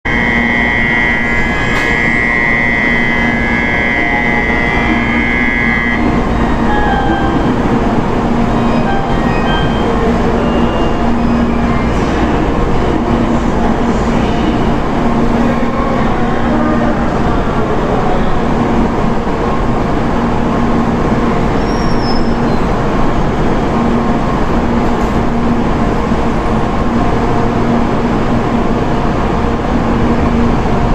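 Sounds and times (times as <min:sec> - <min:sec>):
train standing humming: 0:00.0 - 0:30.9
platform door buzzer: 0:00.1 - 0:07.7.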